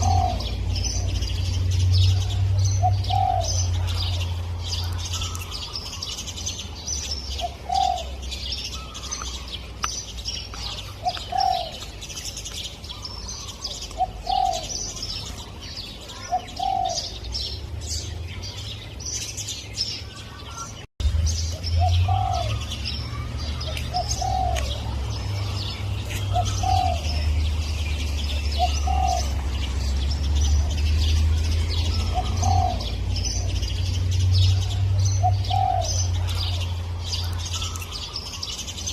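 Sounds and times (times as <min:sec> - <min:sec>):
dove cooing: 0:00.0 - 0:01.3, 0:02.0 - 0:06.1, 0:07.3 - 0:09.5, 0:10.6 - 0:12.0, 0:12.9 - 0:15.4, 0:16.1 - 0:17.3, 0:21.8 - 0:25.1, 0:25.7 - 0:27.3, 0:28.5 - 0:29.7, 0:31.8 - 0:33.6, 0:34.4 - 0:36.7
small birds chirping: 0:00.0 - 0:38.9.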